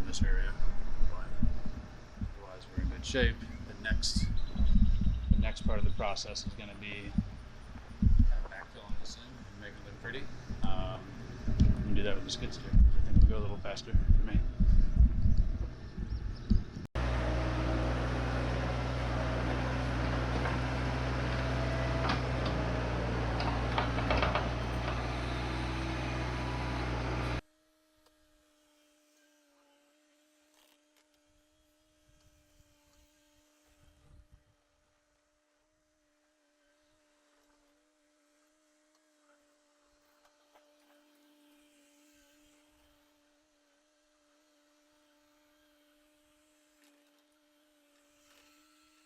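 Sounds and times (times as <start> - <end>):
diesel engine running: 17.0 - 27.4.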